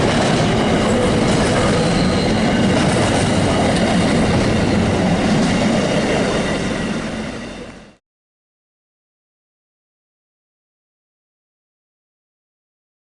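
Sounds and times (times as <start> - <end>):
train wheels rumbling on rails: 0.0 - 8.0.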